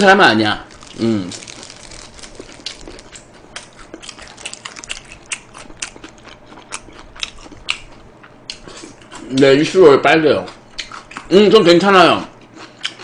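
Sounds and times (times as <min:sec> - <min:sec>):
chewing with wet clicks and smacks: 0:02.2 - 0:09.5, 0:10.4 - 0:11.4, 0:12.3 - 0:13.0.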